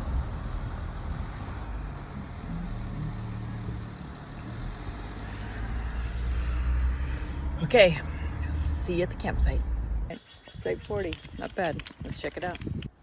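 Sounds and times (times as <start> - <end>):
road noise: 0.0 - 13.0
truck engine rumble: 0.0 - 13.0.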